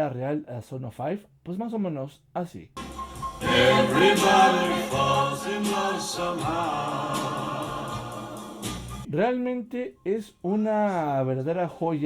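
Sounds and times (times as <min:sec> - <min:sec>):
music with singing voices: 0:02.8 - 0:09.1.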